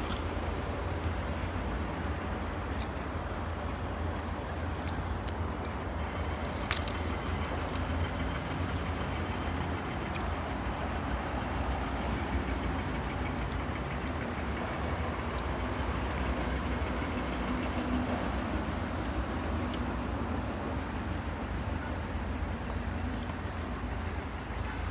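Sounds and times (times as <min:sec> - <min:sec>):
moving vehicle rumble: 0:00.0 - 0:24.9.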